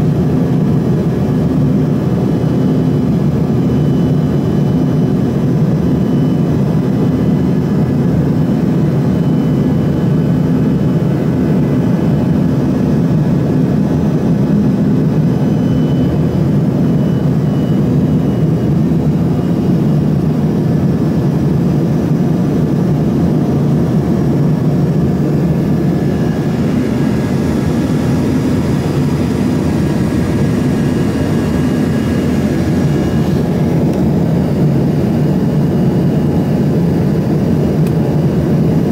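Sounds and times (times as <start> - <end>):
faint steady whine: 0.0 - 38.9
jet cabin low rush: 24.6 - 35.2.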